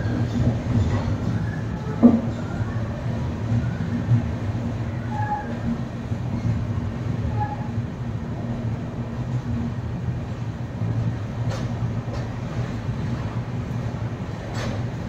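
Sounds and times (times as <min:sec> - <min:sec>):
train running rumble: 0:00.0 - 0:15.0.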